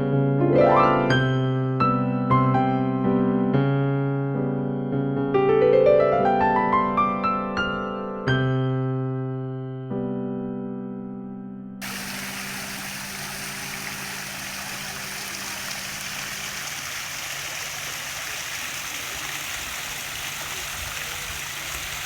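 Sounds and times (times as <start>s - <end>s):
fountain water splashing: 11.8s - 22.0s.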